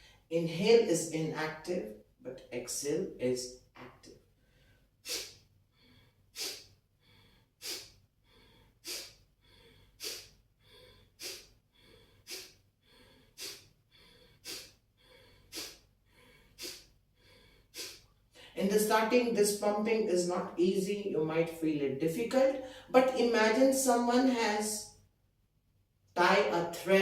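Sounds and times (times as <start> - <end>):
faint inhales: 0.0 - 0.3, 4.4 - 18.6, 22.6 - 22.9
forceful nasal exhalations: 4.4 - 18.6.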